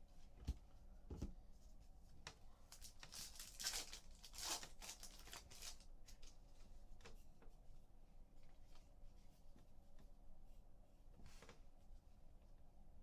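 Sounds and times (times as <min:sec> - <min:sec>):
cards rustling against each other: 0:02.7 - 0:06.4.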